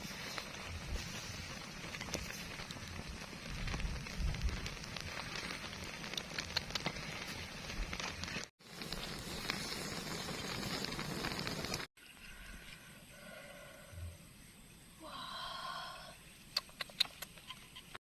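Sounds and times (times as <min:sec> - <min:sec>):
fire hissing: 0:00.0 - 0:11.9
wood fire crackling and popping: 0:00.0 - 0:11.9.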